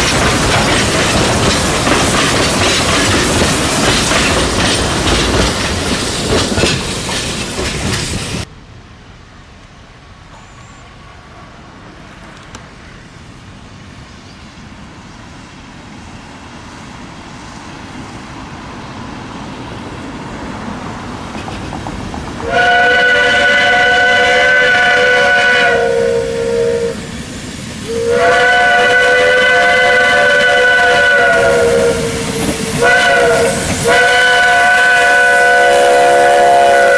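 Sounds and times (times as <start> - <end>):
steam locomotive running: 0.0 - 36.9
chime steam whistle: 22.4 - 27.3, 27.9 - 36.9.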